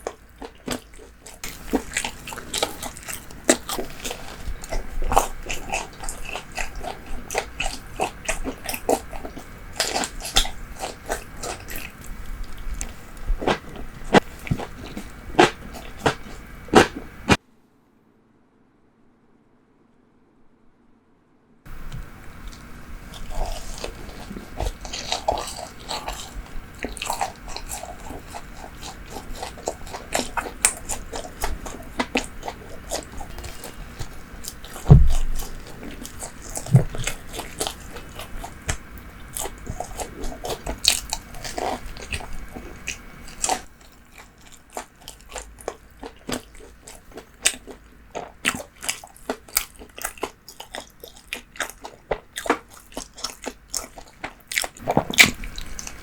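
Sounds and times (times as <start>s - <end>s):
crunchy chewing: 0.0s - 17.4s, 21.7s - 56.0s
dull thump: 34.9s - 35.4s.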